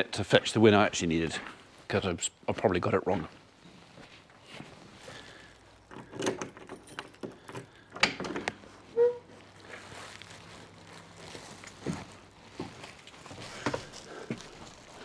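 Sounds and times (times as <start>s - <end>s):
handling knocks and clicks: 5.6s - 8.9s
short squeak: 8.9s - 9.3s.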